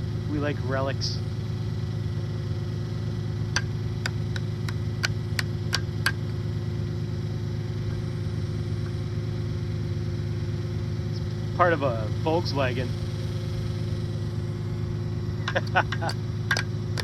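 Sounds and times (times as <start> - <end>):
tractor engine idling: 0.0 - 17.0
sharp taps: 3.5 - 6.4, 15.4 - 17.0.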